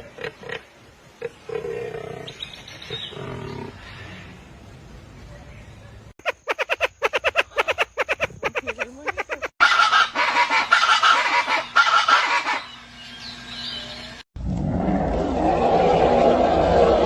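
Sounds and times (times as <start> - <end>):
bird calls: 6.2 - 14.2.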